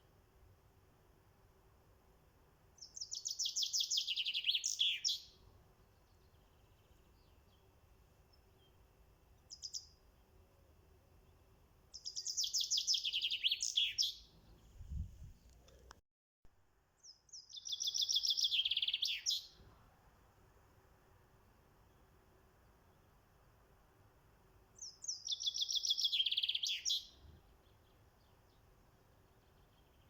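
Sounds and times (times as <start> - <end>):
songbird trilling song: 2.8 - 7.7, 9.4 - 10.3, 11.2 - 15.1, 17.0 - 19.6, 24.8 - 30.0.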